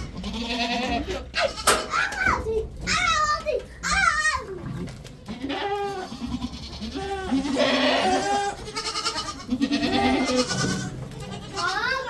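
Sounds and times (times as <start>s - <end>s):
goats bleating: 0.0s - 2.0s, 5.2s - 12.0s.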